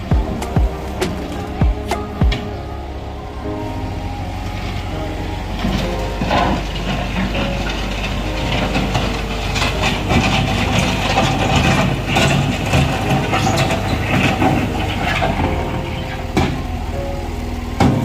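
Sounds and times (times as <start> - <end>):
bulldozer diesel engine running: 0.0 - 18.0
metallic clanking and scraping: 5.5 - 16.8.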